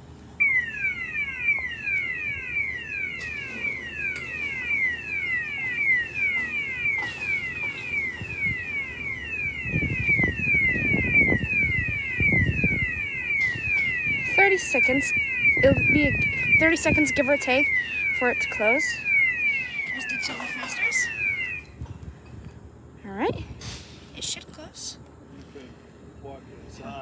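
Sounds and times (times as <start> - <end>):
gate warning alarm chirps: 0.4 - 21.8.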